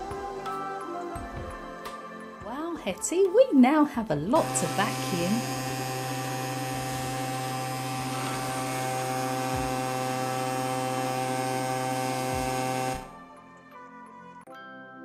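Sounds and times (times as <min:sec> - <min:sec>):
toy vacuum motor humming: 0:04.4 - 0:13.2.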